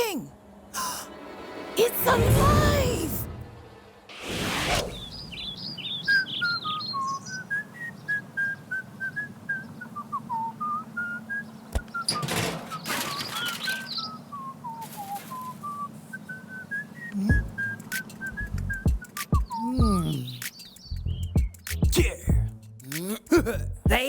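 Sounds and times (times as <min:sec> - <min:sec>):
swishes: 0:00.9 - 0:05.6
person whistling a tune: 0:14.4 - 0:20.4.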